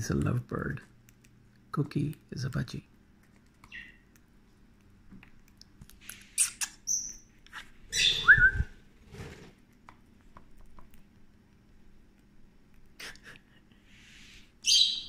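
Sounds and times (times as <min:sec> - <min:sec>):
birds chirping and squeaking: 0:03.6 - 0:04.1, 0:06.0 - 0:08.5, 0:14.6 - 0:15.0.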